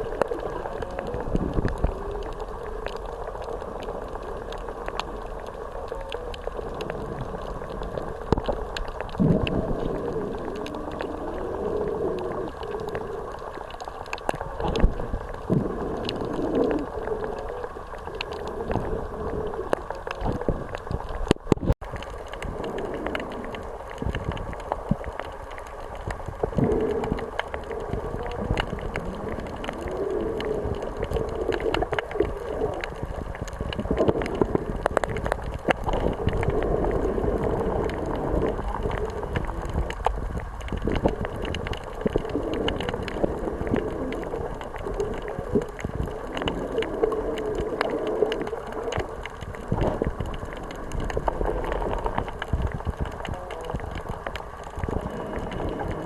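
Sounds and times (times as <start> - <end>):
sea rushing: 0.0 - 56.0
small clicks and crackles: 0.0 - 56.0
wind: 0.0 - 56.0.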